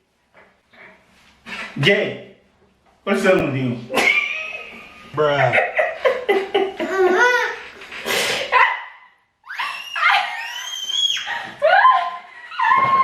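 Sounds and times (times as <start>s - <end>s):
person laughing: 3.9s - 7.8s.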